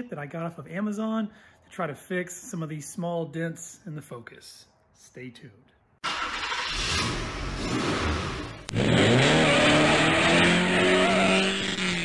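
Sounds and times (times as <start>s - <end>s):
car engine revving: 6.0s - 12.0s.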